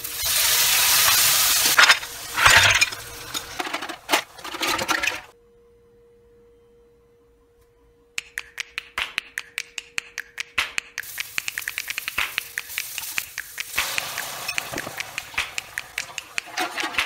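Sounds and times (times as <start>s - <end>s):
hot oil sizzling in a frying pan: 0.0s - 2.4s, 11.0s - 16.5s
faint steady hum: 1.7s - 8.6s.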